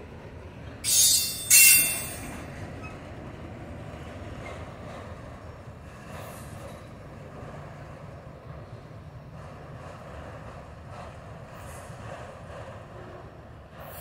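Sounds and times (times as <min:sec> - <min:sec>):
train cars rumbling past: 0:00.0 - 0:14.0
high-pitched wheel squeal: 0:00.9 - 0:02.2.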